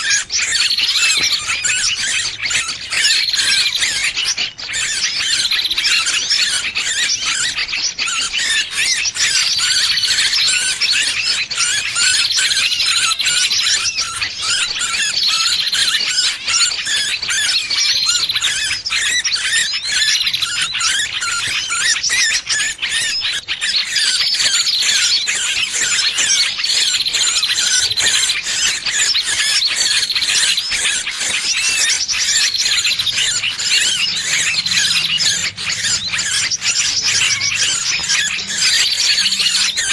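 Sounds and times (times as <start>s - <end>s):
small bird squealing: 0.0s - 39.9s.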